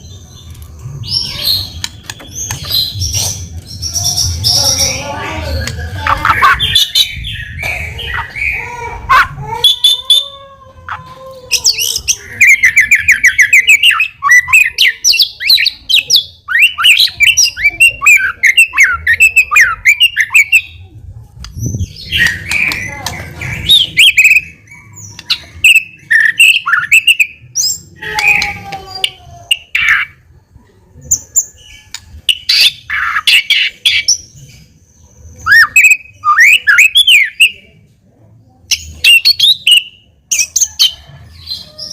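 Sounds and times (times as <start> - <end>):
songbird singing: 10.9 - 37.8.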